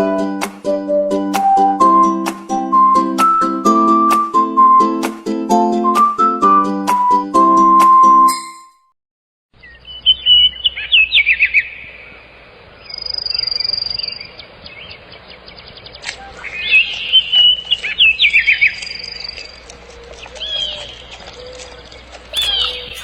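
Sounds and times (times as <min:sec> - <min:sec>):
songbird singing sliding whistles: 0:16.0 - 0:23.0
thin high steady whistle: 0:22.3 - 0:23.0.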